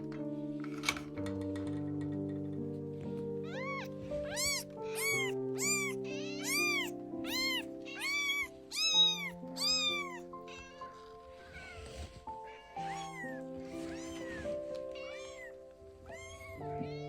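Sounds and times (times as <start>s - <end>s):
soft background music: 0.0s - 17.0s
kitten mewing: 3.4s - 17.0s.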